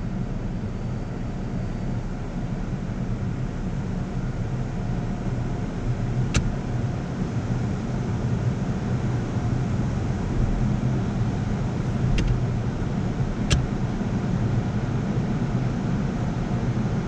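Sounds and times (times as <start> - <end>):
sharp click: 6.3 - 6.6, 11.9 - 12.4, 13.5 - 13.8
car wash machinery rumbling: 9.0 - 14.5.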